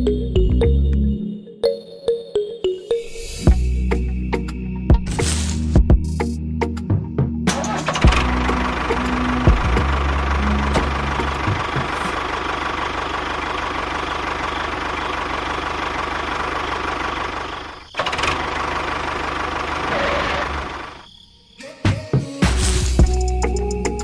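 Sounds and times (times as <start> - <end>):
engine running: 7.5 - 21.0.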